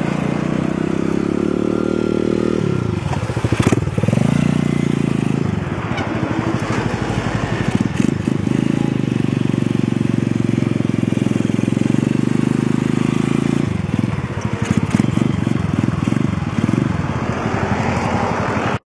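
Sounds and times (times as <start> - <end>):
motorcycle engine running: 0.0 - 18.8.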